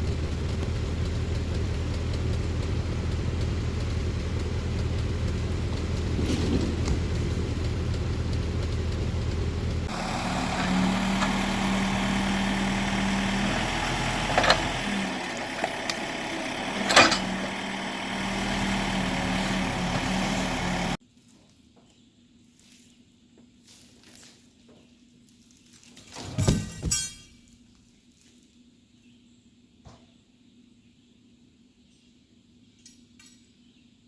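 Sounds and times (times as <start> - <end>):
engine running: 0.0 - 21.0.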